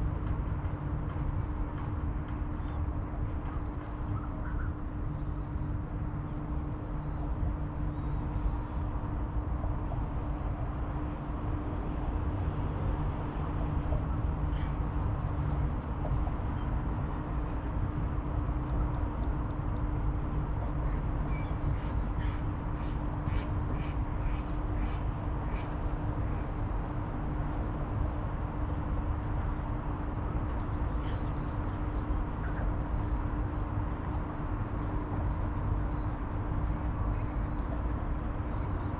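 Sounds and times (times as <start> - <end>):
faint constant hum: 0.0 - 38.9
bird calls and squawks: 30.9 - 33.0.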